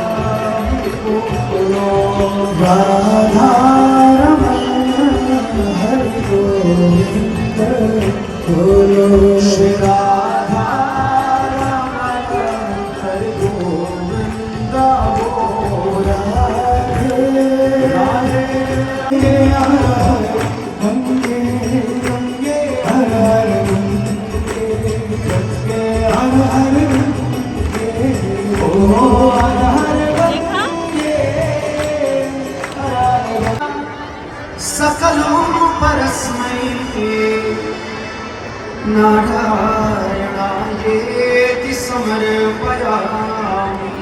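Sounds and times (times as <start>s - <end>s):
rhythmic hand percussion: 0.0s - 33.8s
person singing long notes: 0.0s - 38.0s.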